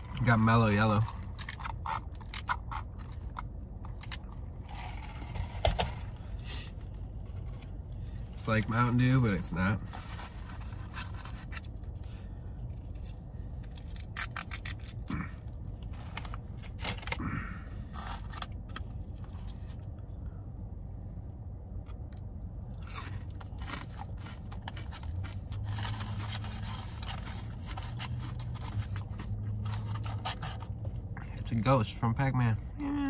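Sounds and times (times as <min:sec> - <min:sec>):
biting and chewing chicken nuggets: 0:00.0 - 0:05.9, 0:12.6 - 0:19.6, 0:21.7 - 0:30.8
steady low hum: 0:00.0 - 0:33.0.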